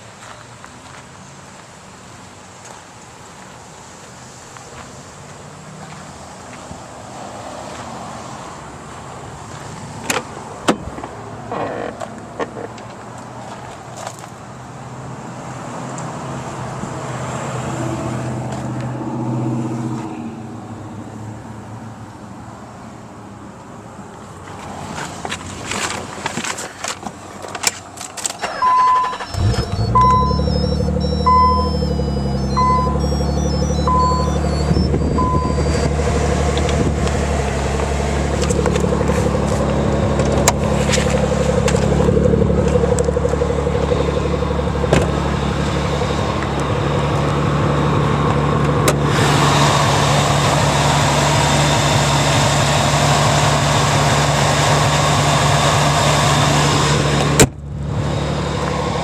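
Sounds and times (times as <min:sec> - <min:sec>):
car engine starting and idling: 0:27.6 - 0:59.0
dashboard warning chime beeping: 0:28.5 - 0:36.8.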